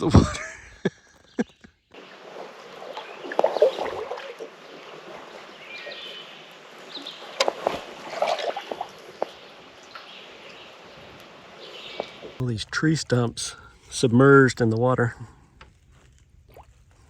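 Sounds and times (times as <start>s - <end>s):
paddle splashing in water: 2.0s - 12.5s.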